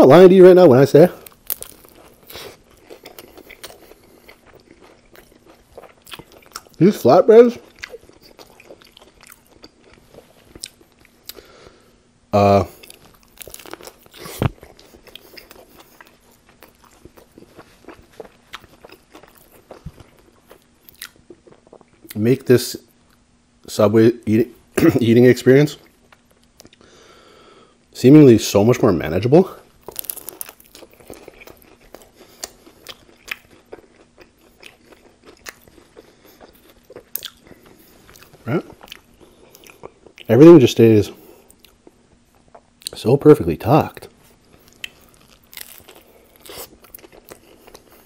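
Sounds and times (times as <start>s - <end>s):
chewing with small clicks: 1.2s - 6.8s, 7.6s - 11.4s, 12.7s - 22.2s, 25.8s - 26.8s, 29.8s - 40.3s, 41.4s - 43.0s, 44.5s - 48.0s.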